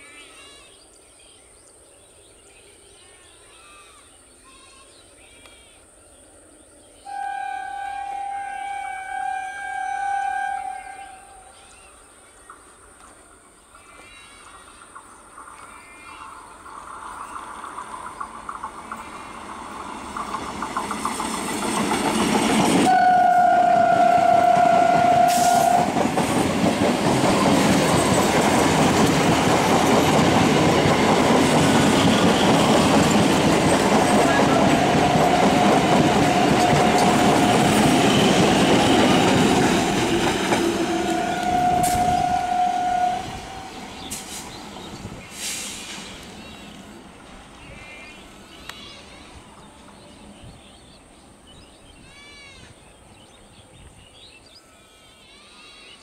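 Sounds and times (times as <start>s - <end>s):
train horn: 7.0s - 11.6s, 22.7s - 26.4s, 31.5s - 33.0s, 34.2s - 44.4s
train passing at speed: 7.1s - 13.8s, 14.8s - 51.8s.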